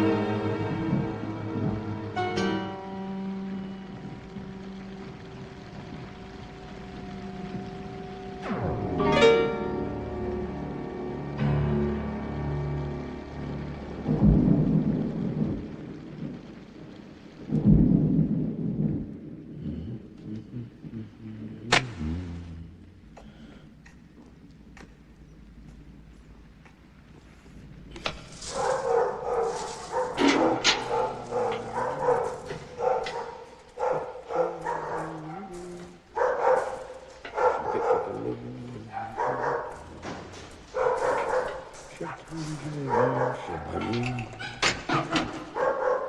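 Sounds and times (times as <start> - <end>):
soft orchestral music: 0.0 - 18.3, 25.0 - 45.6
rain hissing: 0.0 - 46.0
thunder rolling: 0.0 - 46.0
dog barking and yelping: 28.4 - 43.7, 44.4 - 46.0.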